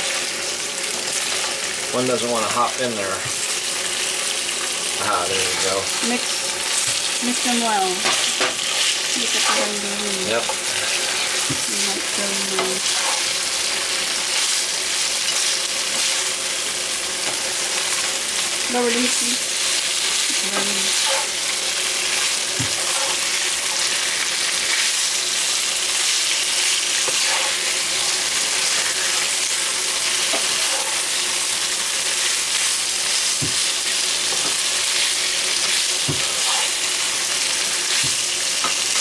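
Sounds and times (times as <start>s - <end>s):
food sizzling in a pan: 0.0s - 39.0s
utensil knocking on pan: 33.4s - 33.7s.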